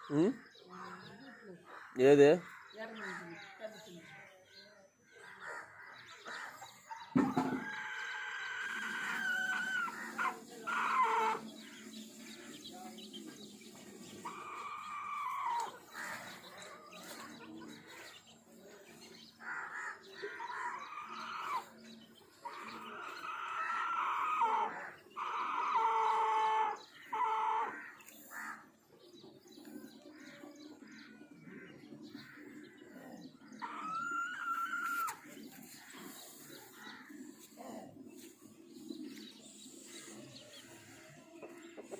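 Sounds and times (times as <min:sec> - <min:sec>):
roosters crowing: 0:07.1 - 0:11.6, 0:14.2 - 0:17.2, 0:19.5 - 0:21.8, 0:22.4 - 0:28.5, 0:33.6 - 0:35.8.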